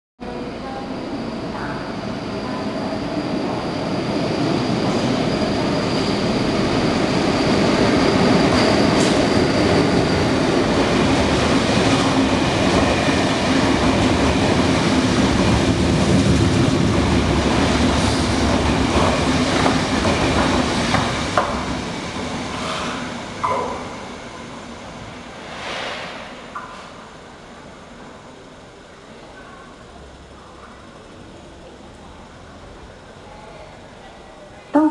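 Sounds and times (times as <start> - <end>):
wheels rumbling on rail: 0.2 - 34.0.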